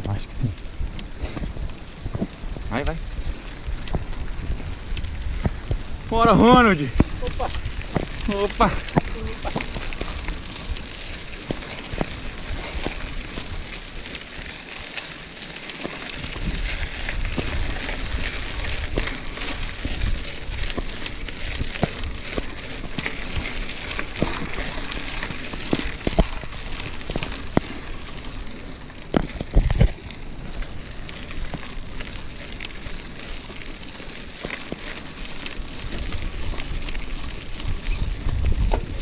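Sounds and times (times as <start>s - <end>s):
wind on microphone: 0.0s - 13.8s, 35.9s - 39.0s
bike rattling and knocking: 0.0s - 39.0s
tyres crunching on dirt: 0.0s - 39.0s.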